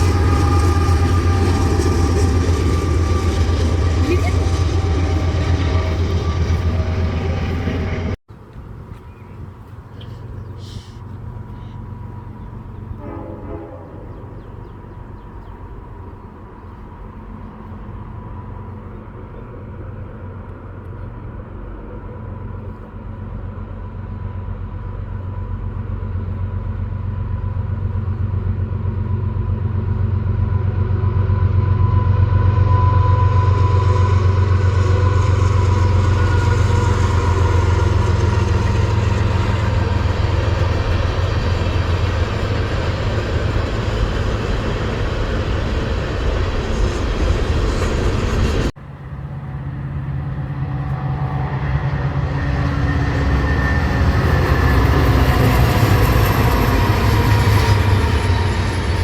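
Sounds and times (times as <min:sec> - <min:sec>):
train rumble: 0:00.0 - 0:59.0.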